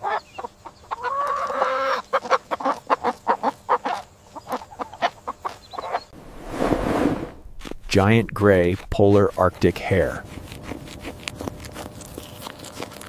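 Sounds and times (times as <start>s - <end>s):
chicken clucking: 0.0s - 6.0s
chicken drawn-out call: 0.9s - 4.0s.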